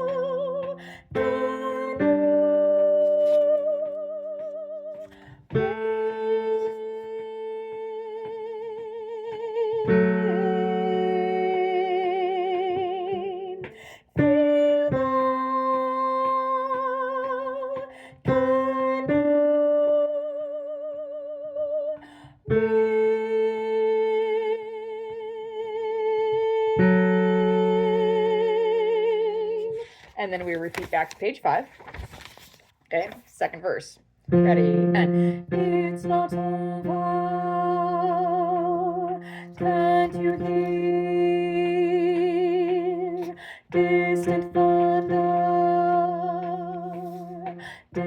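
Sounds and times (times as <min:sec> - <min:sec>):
person singing with vibrato: 0:00.0 - 0:29.8, 0:34.3 - 0:48.0.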